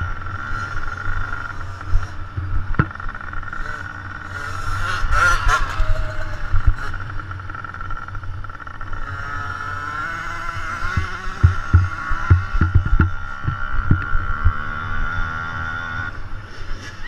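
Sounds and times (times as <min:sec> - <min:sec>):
dirt bike engines whining: 0:00.0 - 0:17.0
low thumps: 0:10.9 - 0:14.6.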